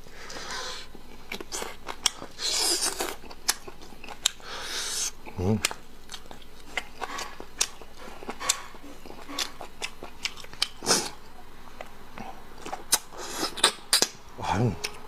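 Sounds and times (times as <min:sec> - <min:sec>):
chewing with wet mouth smacks: 0:01.1 - 0:04.4, 0:05.0 - 0:11.9, 0:12.6 - 0:14.2.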